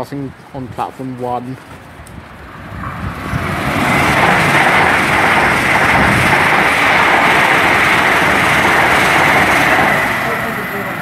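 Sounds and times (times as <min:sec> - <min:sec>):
trains passing: 0:00.0 - 0:11.0.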